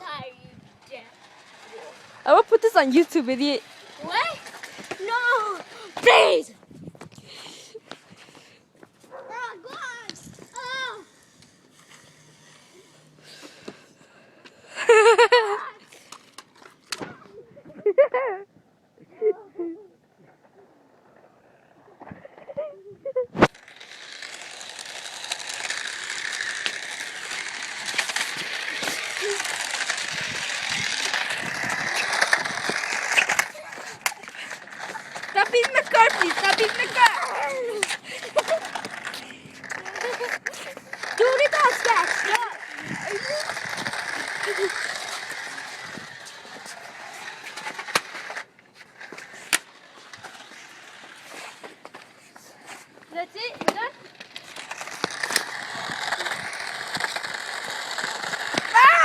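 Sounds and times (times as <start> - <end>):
toy car motor whirring: 0.0 - 6.5, 9.4 - 18.2, 20.5 - 59.0
rapid clicking rattle: 23.6 - 37.4, 54.2 - 58.8.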